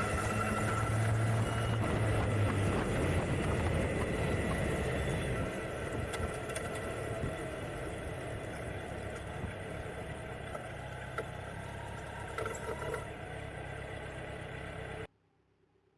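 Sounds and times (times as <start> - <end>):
motorcycle engine idling: 7.0 - 15.1.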